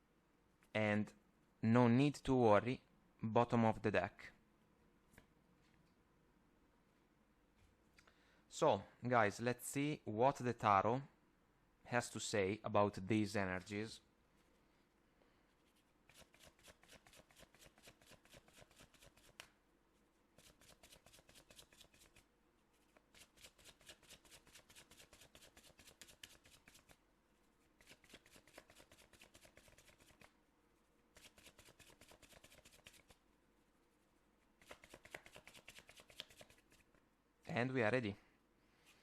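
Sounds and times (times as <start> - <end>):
cards being shuffled: 22.8 - 27.0, 27.8 - 30.4, 31.1 - 33.2, 34.6 - 37.0.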